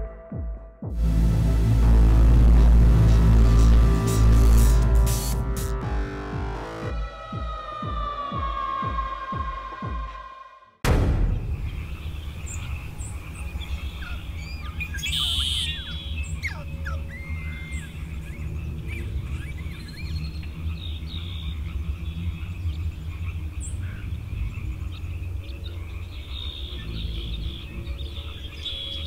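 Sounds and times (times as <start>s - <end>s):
steady low rumble: 0.9s - 7.8s, 10.8s - 28.5s
noisy burst: 1.0s - 6.8s, 10.8s - 16.5s
birds chirping and calling: 11.5s - 29.0s.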